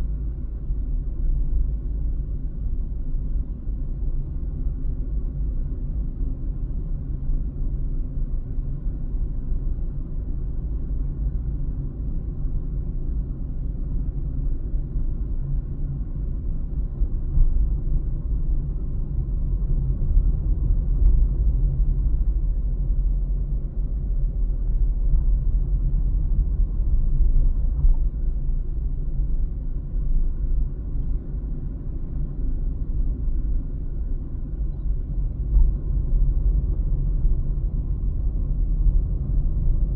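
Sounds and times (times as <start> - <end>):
car engine hum: 0.0 - 39.9
road noise: 15.0 - 39.9.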